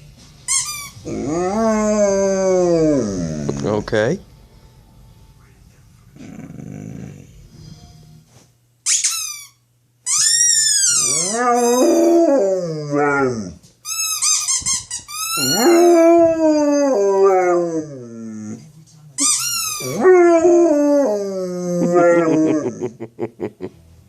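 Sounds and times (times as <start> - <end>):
dog howling: 1.1 - 3.7, 10.8 - 13.6, 15.4 - 18.6, 19.8 - 22.8.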